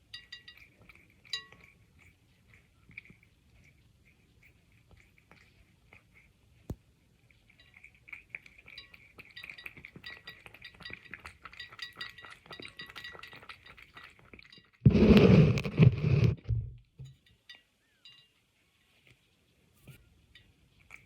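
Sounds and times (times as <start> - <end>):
light clinks against bowl: 0.0 - 2.2, 7.4 - 14.8, 17.0 - 18.6, 19.9 - 21.0
cat lapping water: 0.0 - 15.7.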